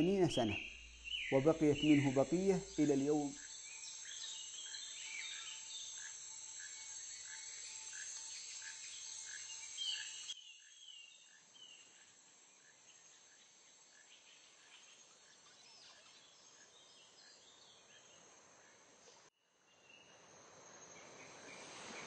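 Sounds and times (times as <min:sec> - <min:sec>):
birds chirping: 0:00.0 - 0:06.0
steady hiss: 0:00.0 - 0:10.4, 0:20.2 - 0:22.0.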